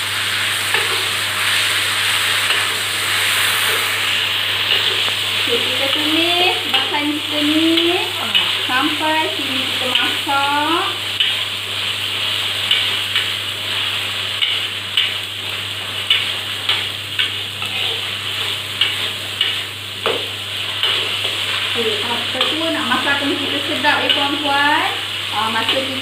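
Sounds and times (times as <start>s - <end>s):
paste sizzling in a wok: 0.0s - 26.0s
metal spatula scraping a wok: 16.1s - 19.7s.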